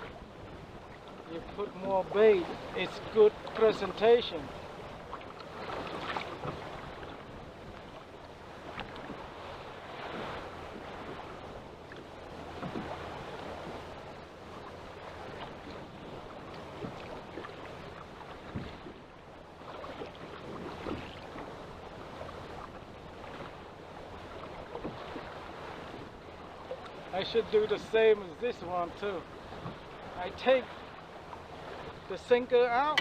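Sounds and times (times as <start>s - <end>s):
water splashing against boat hull: 0.9s - 19.0s.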